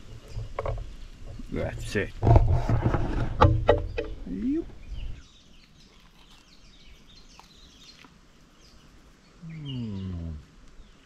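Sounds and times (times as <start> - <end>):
small birds chirping: 0.0 - 2.2, 3.7 - 11.0
man humming low: 9.4 - 10.5.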